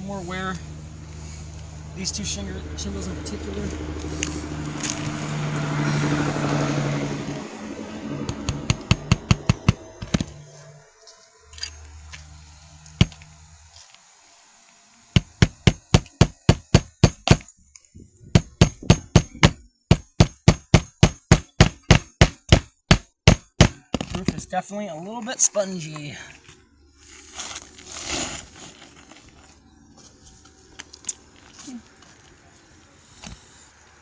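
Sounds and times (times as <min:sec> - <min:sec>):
hammer strikes on shingle roof: 0:08.2 - 0:10.4, 0:15.2 - 0:17.5, 0:18.3 - 0:24.1.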